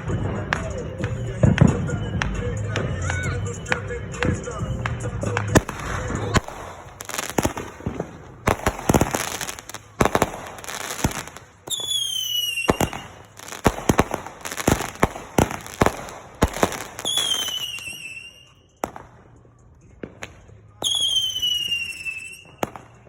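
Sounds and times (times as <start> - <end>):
fireworks bangs and crackles: 0.0 - 23.0
firework whistles falling in pitch: 10.6 - 19.0, 20.8 - 23.0.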